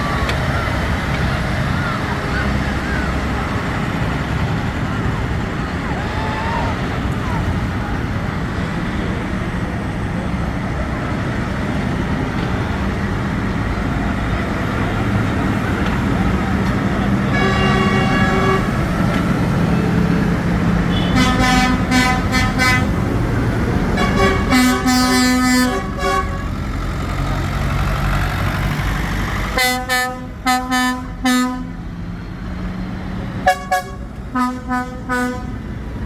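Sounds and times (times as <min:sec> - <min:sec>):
tractor engines running: 0:00.0 - 0:36.0
tractor horns tooting: 0:16.3 - 0:26.9, 0:29.4 - 0:31.9, 0:33.4 - 0:35.8.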